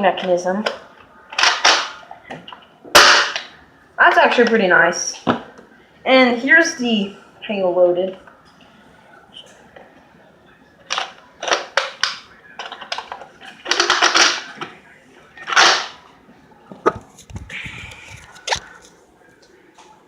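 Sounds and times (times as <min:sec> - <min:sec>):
plastic rattling: 0:10.9 - 0:14.7.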